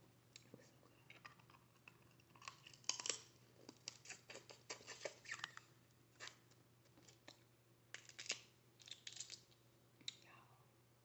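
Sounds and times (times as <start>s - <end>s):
crab shell cracking: 1.3s - 4.5s, 8.0s - 9.6s.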